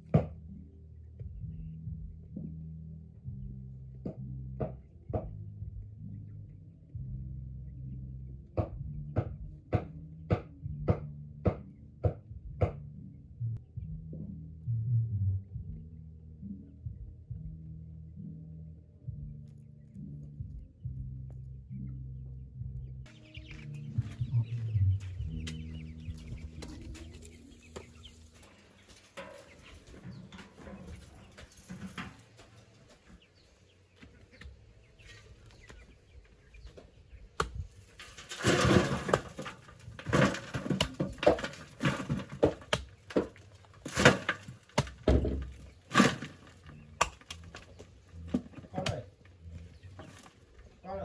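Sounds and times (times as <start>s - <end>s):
background music: 0.0s - 34.0s
chickens clucking and squawking: 23.0s - 50.8s.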